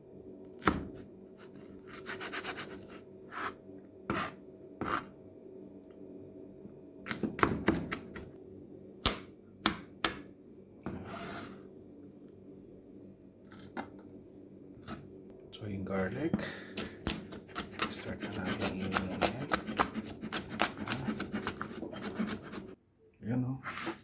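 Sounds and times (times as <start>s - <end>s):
rubbing and rustling: 17.5s - 22.8s.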